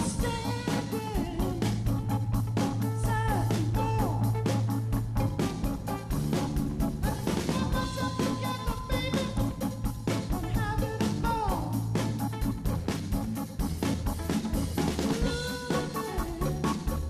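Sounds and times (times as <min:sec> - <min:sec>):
person singing: 0:00.0 - 0:02.1, 0:02.8 - 0:04.4, 0:07.0 - 0:11.9, 0:15.1 - 0:17.0
bass guitar: 0:00.0 - 0:17.0
drum beat: 0:00.0 - 0:17.0
electric guitar: 0:00.0 - 0:17.0.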